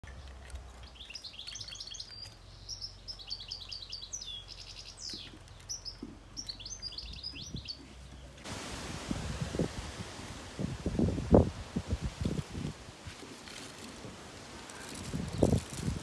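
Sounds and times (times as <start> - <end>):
songbird twittering: 0.8 - 8.4.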